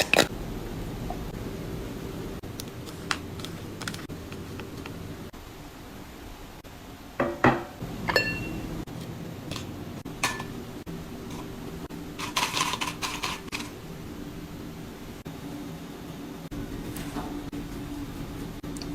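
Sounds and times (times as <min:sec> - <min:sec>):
dishes and utensils clinking: 0:07.2 - 0:08.8, 0:09.5 - 0:10.6, 0:12.2 - 0:13.8.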